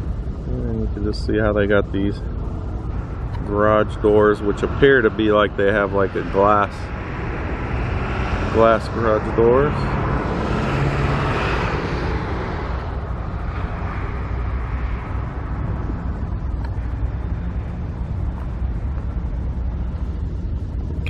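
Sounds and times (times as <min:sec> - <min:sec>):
steady low rumble: 0:00.0 - 0:21.0
vehicle passing: 0:00.5 - 0:21.0.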